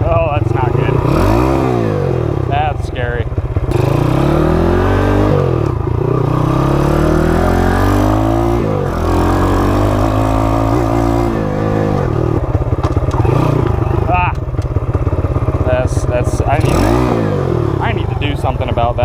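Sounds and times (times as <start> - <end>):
mini bike engine revving: 0.1 - 19.0.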